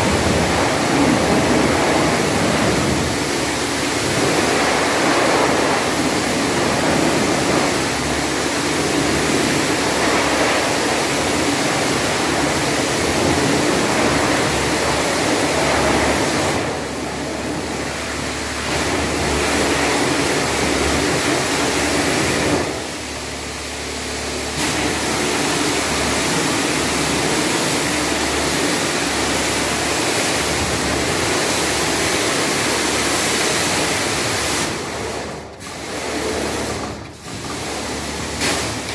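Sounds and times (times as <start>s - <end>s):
pressure washer spraying water: 0.0s - 38.9s.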